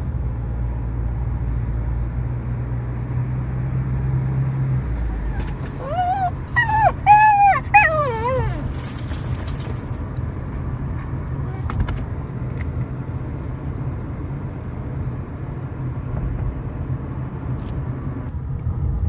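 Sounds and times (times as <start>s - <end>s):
dog whining: 5.1s - 9.6s.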